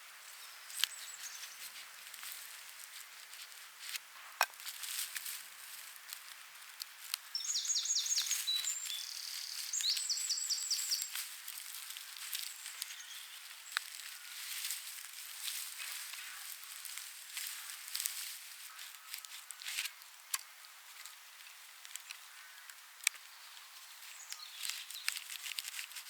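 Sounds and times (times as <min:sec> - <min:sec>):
songbird singing: 0:00.2 - 0:01.8, 0:07.2 - 0:19.6, 0:21.1 - 0:26.0
dry straw rustling: 0:00.3 - 0:26.0.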